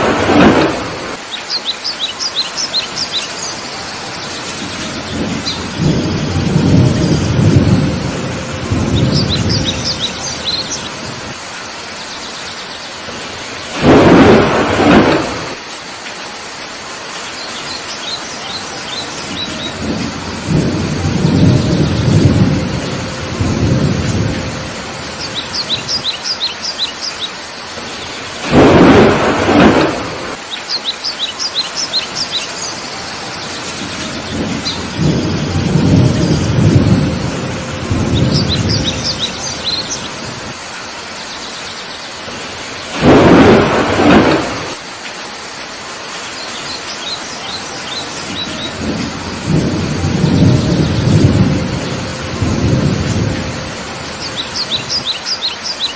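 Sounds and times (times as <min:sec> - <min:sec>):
loud bursts: 0:00.0 - 0:01.2, 0:13.7 - 0:15.6, 0:28.4 - 0:30.4, 0:42.3 - 0:44.8
thunder rumbles: 0:00.0 - 0:01.3, 0:03.9 - 0:11.6, 0:13.0 - 0:15.9, 0:18.7 - 0:26.8, 0:27.7 - 0:30.5, 0:31.9 - 0:40.8, 0:42.2 - 0:45.0, 0:47.6 - 0:55.1
heavy rain: 0:00.0 - 0:55.9
bird chirping: 0:01.2 - 0:06.2, 0:08.9 - 0:11.2, 0:25.1 - 0:28.9, 0:30.5 - 0:35.4, 0:38.1 - 0:40.4, 0:54.1 - 0:55.9.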